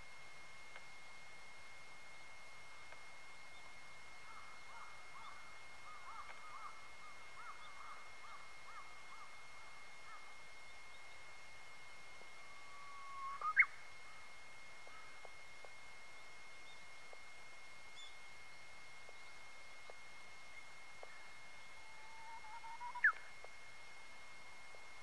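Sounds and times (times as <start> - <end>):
bush warbler singing: 13.1 - 13.8, 19.0 - 23.3.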